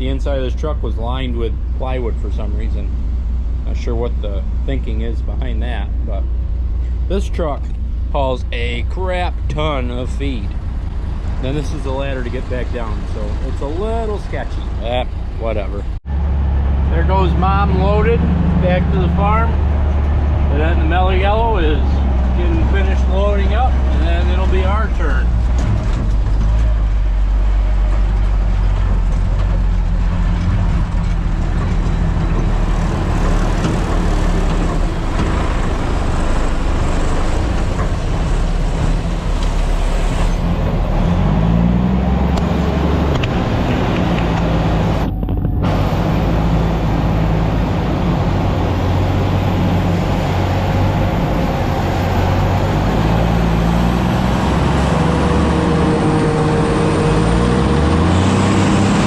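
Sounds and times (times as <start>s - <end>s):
diesel engine droning: 0.0s - 59.0s.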